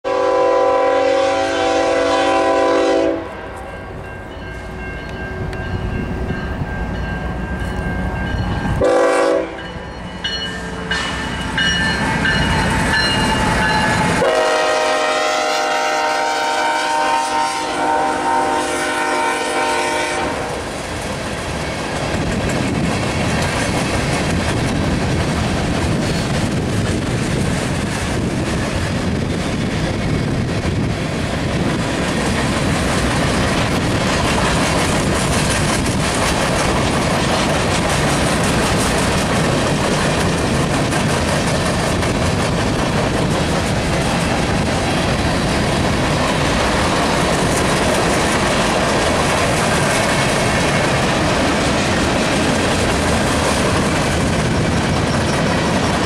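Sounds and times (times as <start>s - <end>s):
train air horn blasts: 0.1s - 3.9s, 8.8s - 9.8s, 12.2s - 20.7s
train wheels clicking over rail joints: 20.5s - 56.0s.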